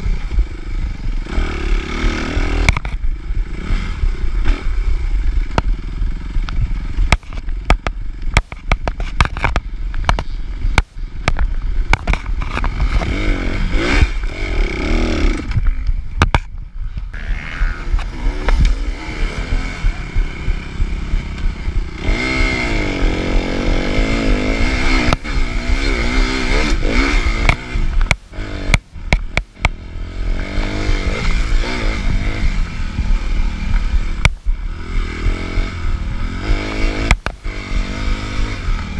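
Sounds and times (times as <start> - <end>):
motocross engine revving: 0.0 - 7.4, 11.6 - 16.0, 17.1 - 38.9
knocks and clatter from bike: 2.6 - 3.1, 6.4 - 13.3, 15.4 - 17.2, 36.8 - 37.5.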